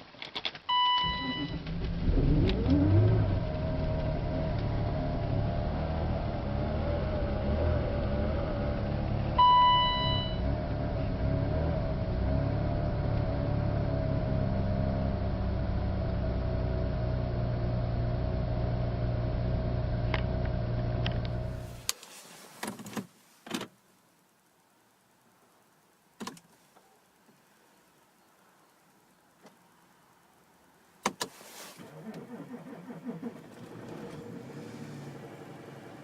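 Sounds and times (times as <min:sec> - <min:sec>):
electronic beep: 0:00.7 - 0:01.6, 0:09.4 - 0:10.4
car engine idling with whine: 0:00.7 - 0:21.9.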